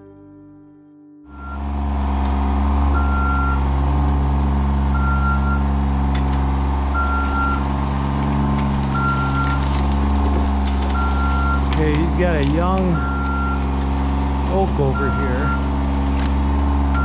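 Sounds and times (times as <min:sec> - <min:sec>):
reversing alarm beeping: 0:01.3 - 0:01.9, 0:02.8 - 0:03.7, 0:04.9 - 0:05.8, 0:06.9 - 0:07.7, 0:08.9 - 0:09.8, 0:10.9 - 0:13.7, 0:14.5 - 0:15.7
heavy machine engine running: 0:01.3 - 0:17.0.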